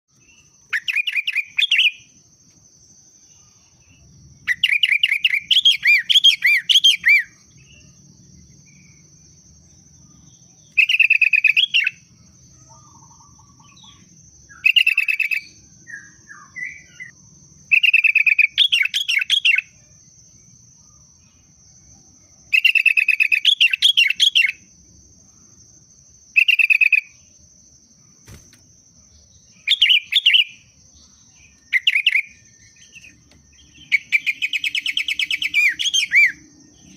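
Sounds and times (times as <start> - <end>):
bird singing whistled phrases: 4.5 - 7.4, 29.6 - 30.6, 31.6 - 33.2, 33.8 - 36.4.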